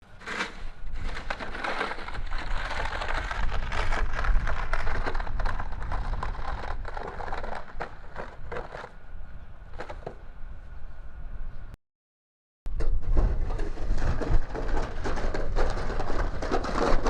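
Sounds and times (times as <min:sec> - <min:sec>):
dense crackling patter: 0:00.2 - 0:08.9, 0:13.0 - 0:17.0
wind buffeting microphone: 0:00.6 - 0:11.7, 0:12.7 - 0:17.0.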